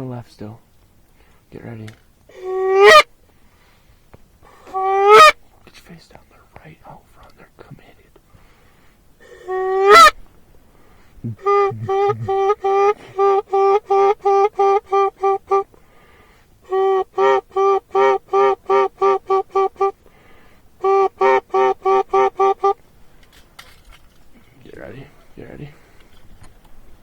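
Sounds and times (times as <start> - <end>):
goose call honking: 2.3 - 3.1, 4.7 - 5.4, 9.2 - 10.2, 11.4 - 15.7, 16.6 - 20.0, 20.8 - 22.8.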